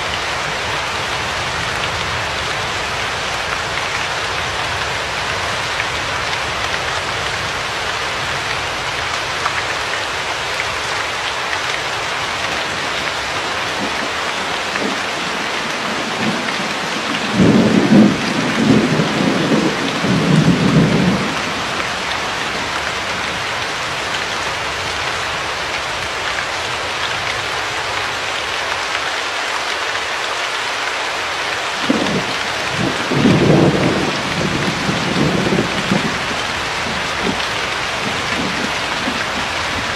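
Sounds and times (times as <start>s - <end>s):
steady rain falling: 0.0s - 39.9s
thunder rumbling: 12.7s - 23.3s, 31.8s - 39.9s.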